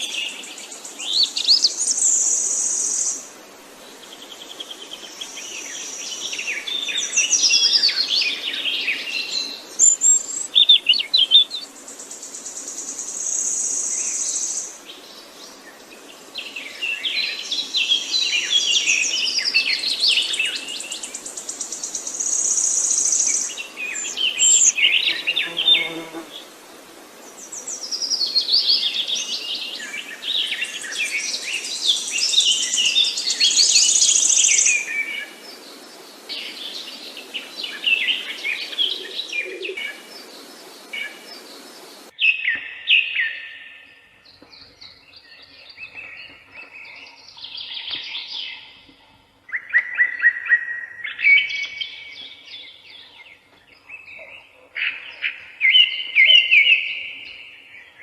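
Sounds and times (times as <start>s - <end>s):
songbirds chirping and singing: 0.0s - 26.5s, 27.3s - 58.0s
steady hiss: 0.0s - 42.1s.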